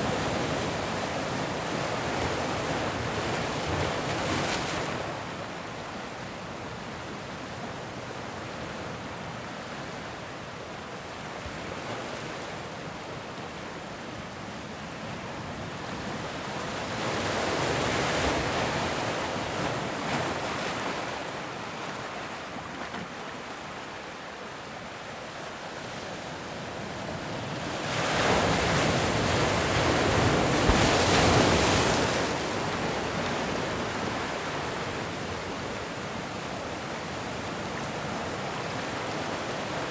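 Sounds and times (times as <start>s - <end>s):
ocean waves breaking: 27.2s - 39.9s.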